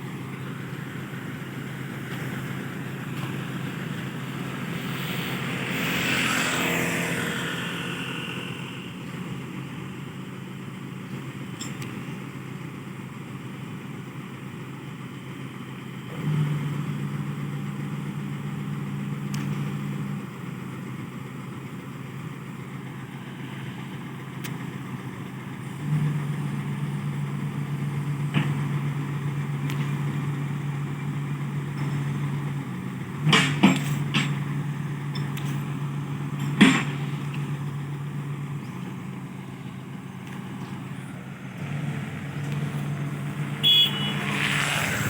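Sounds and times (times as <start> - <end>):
heavy diesel engine running: 0.0 - 45.0.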